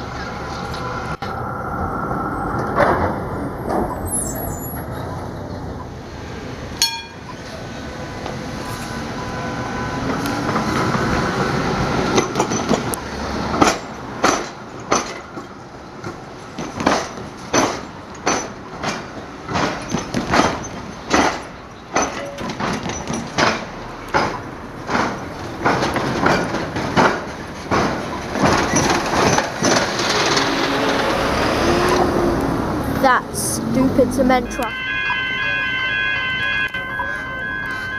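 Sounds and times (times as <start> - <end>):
train wheels banging over crossing: 8.2 - 32.1.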